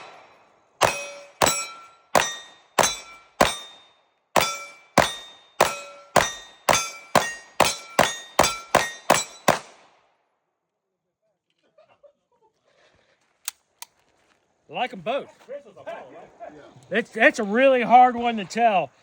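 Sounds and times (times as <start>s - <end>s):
bullets ringing steel target: 0.0s - 9.8s
pistol shots: 0.0s - 10.0s.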